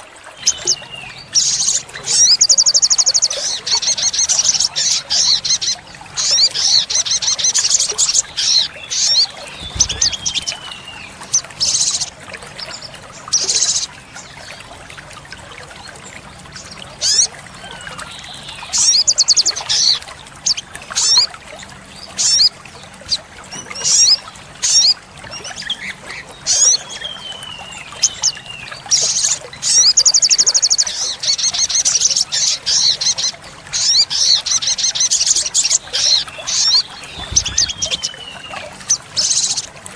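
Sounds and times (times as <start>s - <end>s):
bird high-pitched trills: 33.1s - 39.7s.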